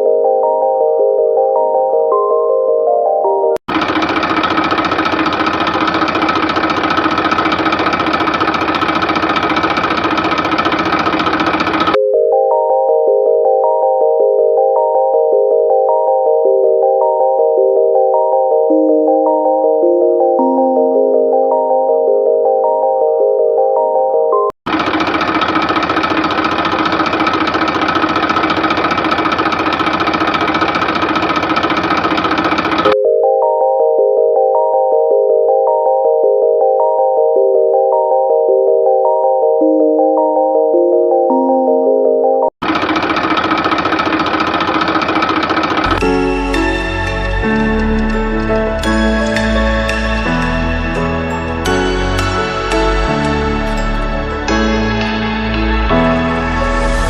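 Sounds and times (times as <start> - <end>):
toy tractor motor running: 3.7 - 12.0, 24.7 - 33.0, 42.6 - 49.9.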